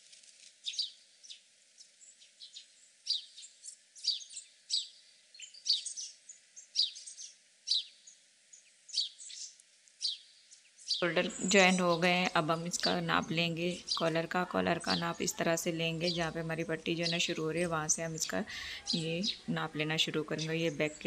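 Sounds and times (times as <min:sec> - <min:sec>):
small bird chirping: 0:00.6 - 0:21.0.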